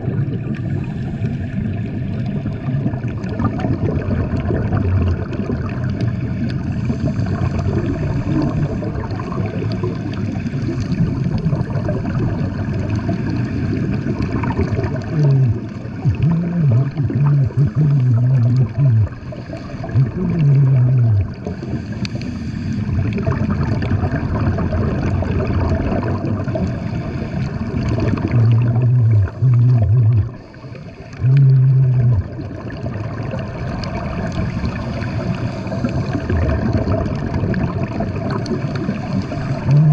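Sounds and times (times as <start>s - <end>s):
underwater gurgling and bubbles: 0.0s - 39.9s
low droning tone: 15.0s - 19.3s, 19.9s - 21.5s, 28.1s - 30.5s, 31.2s - 32.5s, 39.5s - 39.9s.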